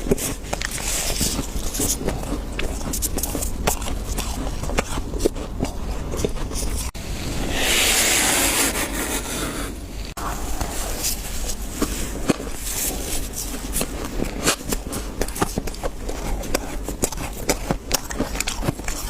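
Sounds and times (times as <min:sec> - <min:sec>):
crunching of freezer frost: 0:00.0 - 0:07.0, 0:10.6 - 0:19.0
scraping of frost: 0:06.6 - 0:15.1.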